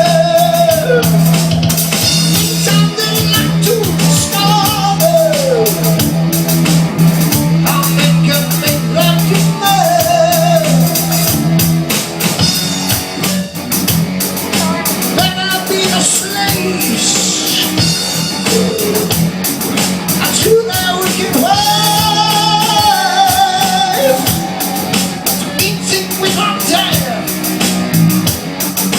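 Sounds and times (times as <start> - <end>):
person singing: 0.0 - 1.3, 2.4 - 6.0, 7.6 - 11.4, 14.4 - 19.3, 20.2 - 27.5
drum kit: 0.0 - 28.9
guitar: 0.0 - 28.9.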